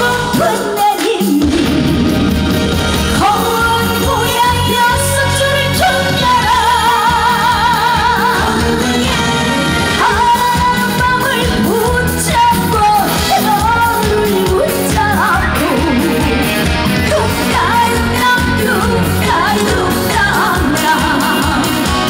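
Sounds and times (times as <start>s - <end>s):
woman singing with vibrato: 0.0s - 1.9s, 3.1s - 22.0s
live band playing: 0.0s - 22.0s.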